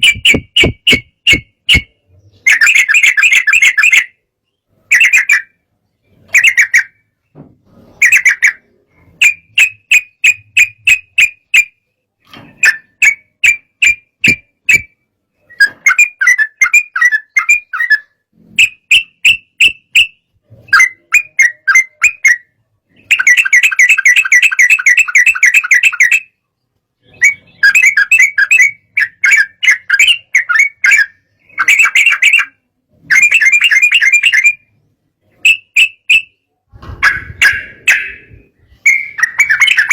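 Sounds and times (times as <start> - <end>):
bird singing whistled phrases: 35.4 - 36.4, 37.0 - 39.9.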